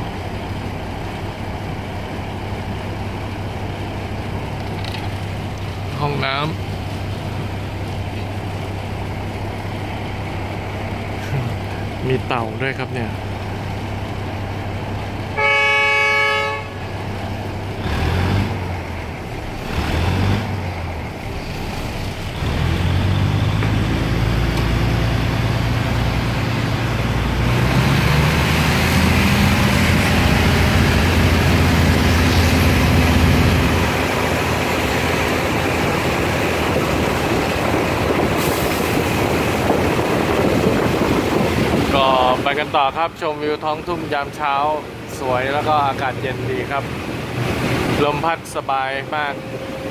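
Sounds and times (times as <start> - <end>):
diesel engine drone: 0.0 - 49.9
train horn blast: 15.3 - 17.0.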